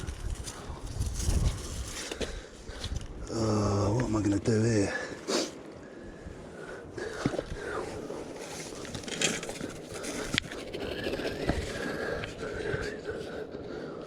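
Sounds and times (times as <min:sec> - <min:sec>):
scraping and rustling handling: 0:08.2 - 0:12.0.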